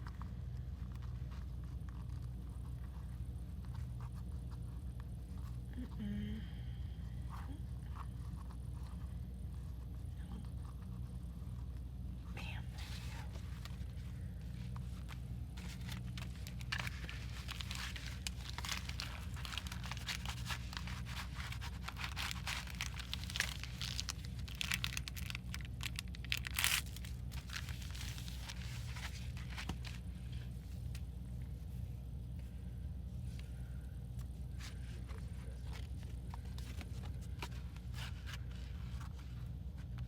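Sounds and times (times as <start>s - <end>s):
steady low hum: 0.0s - 40.0s
paper crinkling and tearing: 13.0s - 31.0s.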